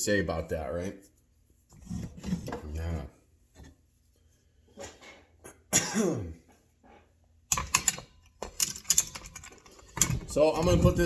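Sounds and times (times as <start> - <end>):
man coughing and clearing throat: 5.4 - 6.5
metal parts clicking: 7.5 - 11.0.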